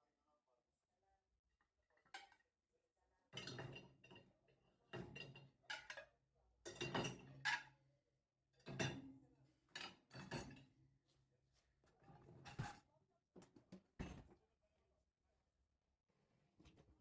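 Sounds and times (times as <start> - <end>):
dishes and cutlery clattering: 3.4 - 4.1, 9.8 - 10.6.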